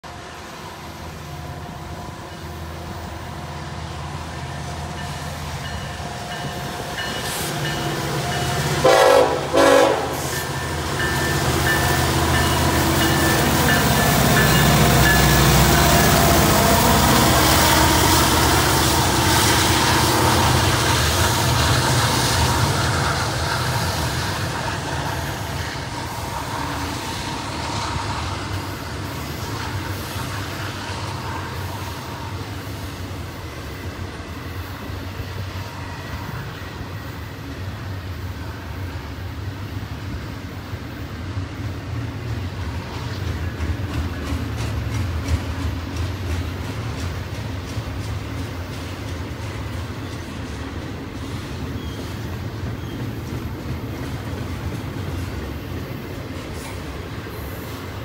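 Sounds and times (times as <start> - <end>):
diesel locomotive passing: 0.0 - 58.0
train wheel noise: 0.0 - 58.0
train horn toots: 8.6 - 12.8, 14.6 - 22.9.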